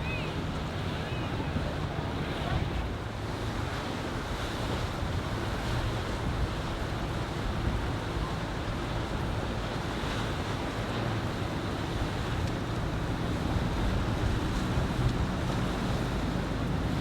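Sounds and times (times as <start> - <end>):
boat engine drone: 0.0 - 17.0
rushing water: 0.0 - 17.0
wind buffeting microphone: 1.4 - 17.0.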